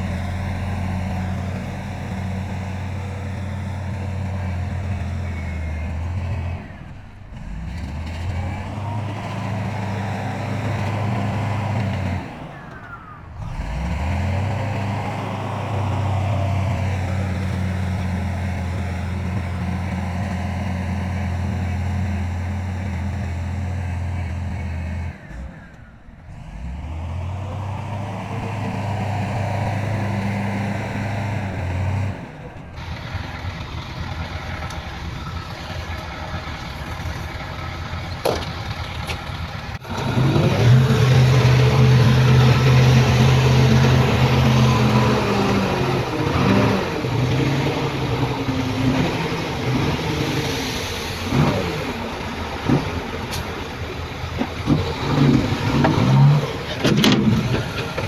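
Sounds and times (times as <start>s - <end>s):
engine revving: 0.0s - 58.0s
heavy diesel engines running: 0.0s - 58.0s.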